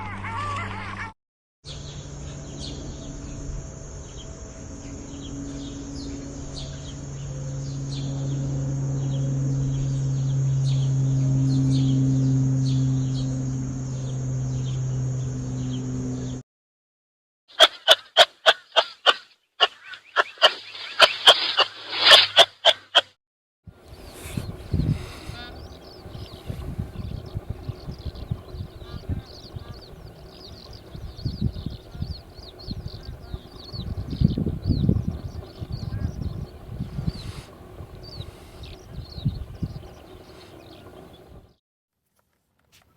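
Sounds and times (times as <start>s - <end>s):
low hum: 1.7s - 16.4s, 23.7s - 41.6s
high bird chirps: 17.8s - 22.2s, 23.9s - 41.5s.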